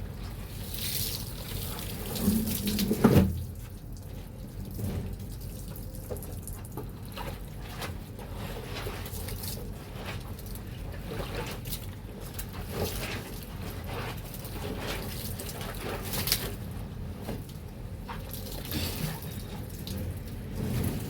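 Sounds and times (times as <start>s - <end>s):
water splashing in a basin: 0.5s - 4.1s.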